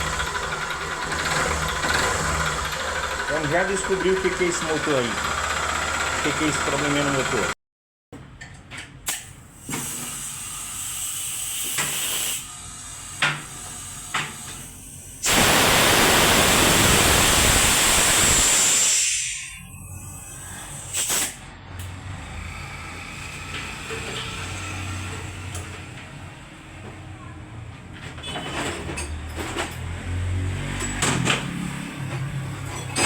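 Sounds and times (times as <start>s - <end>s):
loud hiss of pressurised air: 9.5s - 13.2s, 15.2s - 19.6s, 20.6s - 21.4s.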